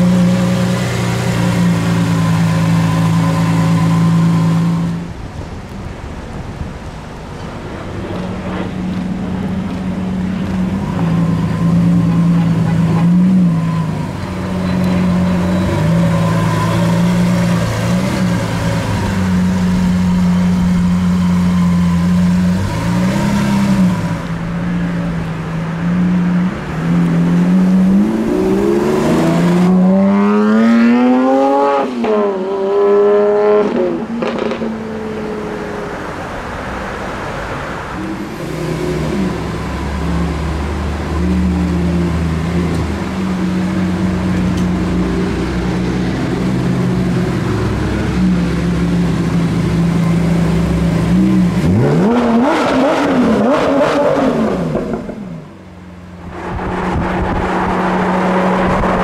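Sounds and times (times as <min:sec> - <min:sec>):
car engine revving: 0:07.7 - 0:35.2, 0:38.2 - 0:59.0
car accelerating through upshifts: 0:25.0 - 0:35.5, 0:44.2 - 0:55.5, 0:56.2 - 0:59.0.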